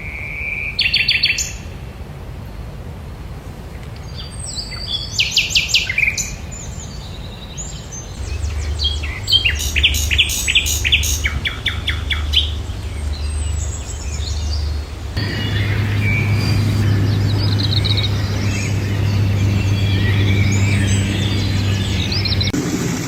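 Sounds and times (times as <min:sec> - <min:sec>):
songbird chirping: 0:03.7 - 0:22.6
low steady hum: 0:08.1 - 0:23.0.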